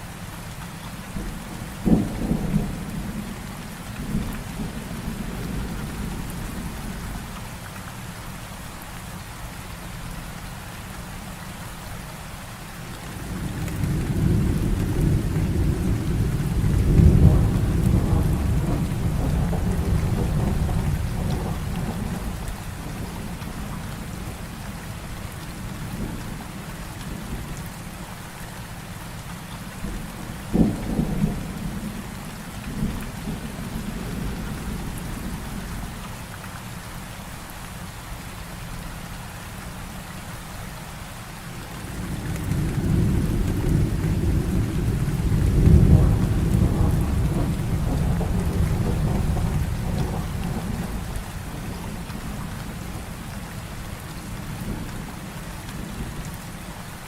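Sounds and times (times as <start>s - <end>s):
heavy rain falling: 0.0s - 57.0s
low thunder rumble: 1.2s - 7.2s, 13.1s - 24.5s, 29.8s - 35.9s, 41.6s - 53.2s
thunder crack: 13.7s - 22.4s, 41.9s - 51.1s.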